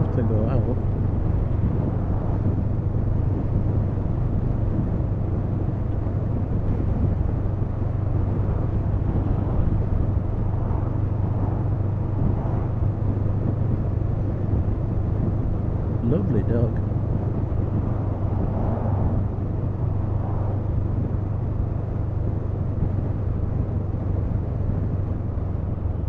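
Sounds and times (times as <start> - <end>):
road and wind noise: 0.0 - 26.0.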